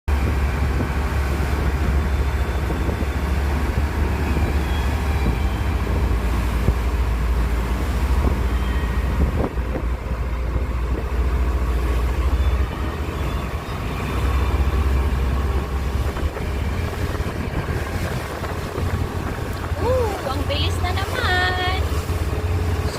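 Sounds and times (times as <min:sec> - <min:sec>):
boat engine rumble: 0:00.0 - 0:22.9.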